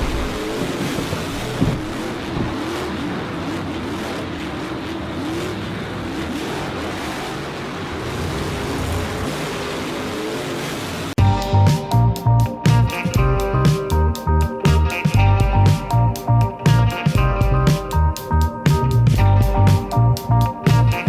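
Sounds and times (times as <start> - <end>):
race car engine revving: 0.0 - 11.1
steady rushing noise: 0.0 - 21.0.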